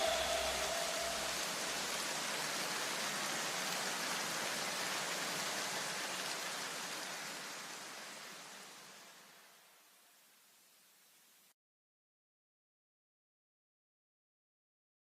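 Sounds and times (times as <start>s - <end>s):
steady hiss: 0.0s - 11.5s.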